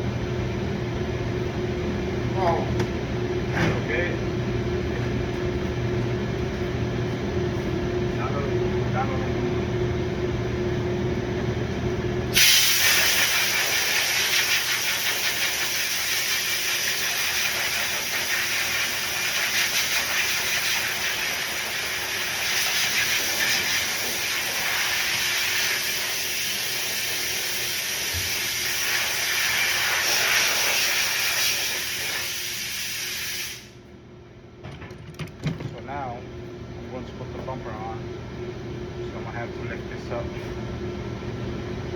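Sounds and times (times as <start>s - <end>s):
steady loud hiss: 12.4s - 33.8s.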